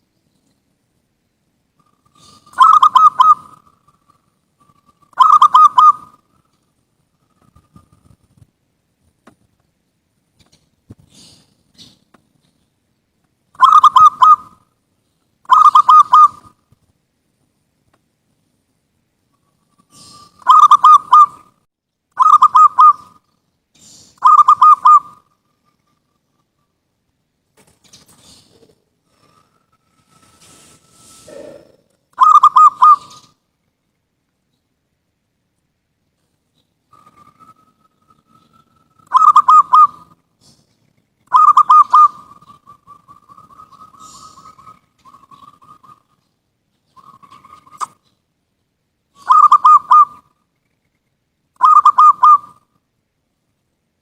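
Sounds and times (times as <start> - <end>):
dove cooing: 1.8 - 6.2, 13.6 - 14.6, 15.4 - 16.6, 19.8 - 21.5, 22.2 - 23.2, 24.2 - 25.3, 28.2 - 33.4, 36.9 - 40.6, 41.3 - 46.2, 49.2 - 50.3, 51.6 - 52.7.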